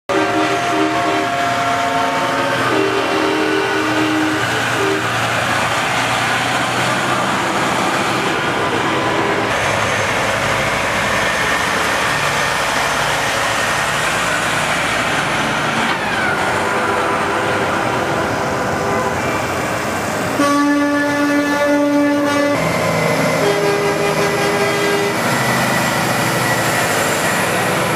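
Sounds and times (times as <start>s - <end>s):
air horn blasting: 0.1s - 5.2s, 16.5s - 19.6s, 20.3s - 25.3s
trucks driving past: 0.1s - 27.9s.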